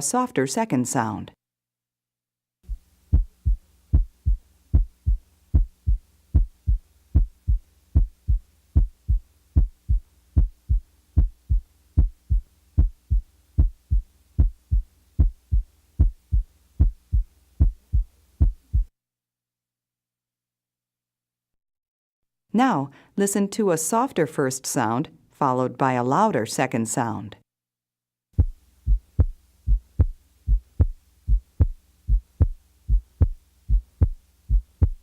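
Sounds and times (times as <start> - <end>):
heartbeat lub-dub: 2.7 - 18.9, 28.4 - 35.0.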